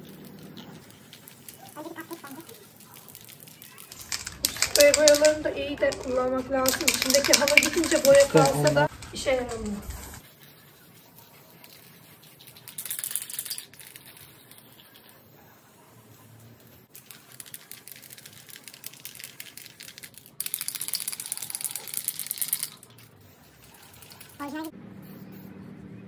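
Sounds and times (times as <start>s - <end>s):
spray can sputtering hiss: 0.3s - 9.0s, 11.0s - 25.5s.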